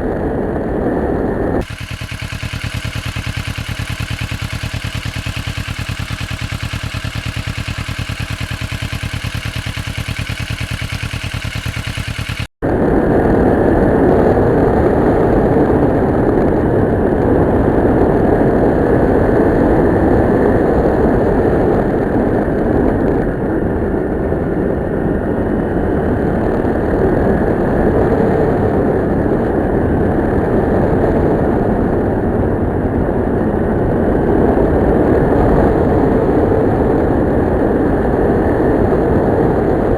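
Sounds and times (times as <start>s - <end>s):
motorcycle engine running: 1.5s - 39.9s
riding noise rush: 1.6s - 14.8s.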